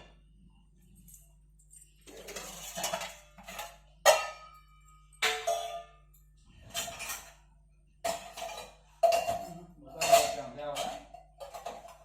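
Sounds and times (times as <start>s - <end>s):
dishes and utensils clinking: 1.0s - 12.0s.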